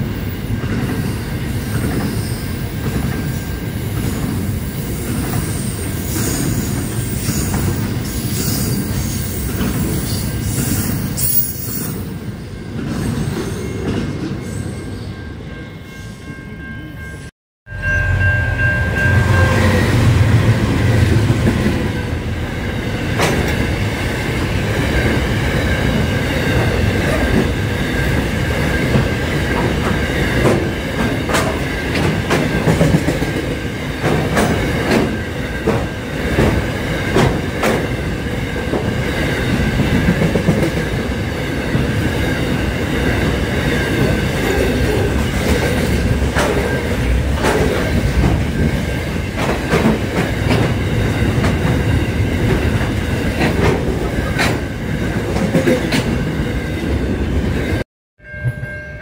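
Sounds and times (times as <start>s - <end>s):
freight train rumble: 16.2s - 58.8s
wheels clattering over rail joints: 43.7s - 56.2s.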